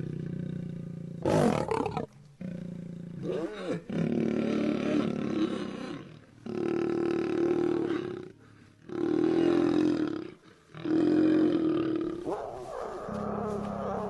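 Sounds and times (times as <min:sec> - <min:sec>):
lion roaring: 0:09.0 - 0:14.0.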